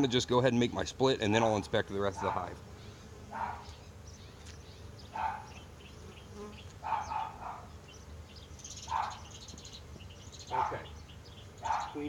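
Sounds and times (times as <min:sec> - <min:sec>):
bees buzzing: 0:00.0 - 0:12.0
dog barking: 0:02.2 - 0:02.5, 0:03.3 - 0:03.7, 0:05.2 - 0:05.5, 0:06.8 - 0:07.7, 0:08.9 - 0:09.2, 0:10.5 - 0:10.9, 0:11.6 - 0:12.0.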